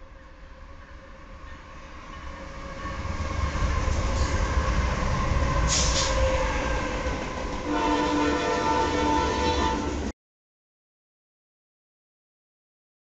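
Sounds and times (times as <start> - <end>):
diesel locomotive engine rumble: 0.0 - 10.1
freight cars rolling by: 0.1 - 10.1
brief high hiss: 5.7 - 6.2.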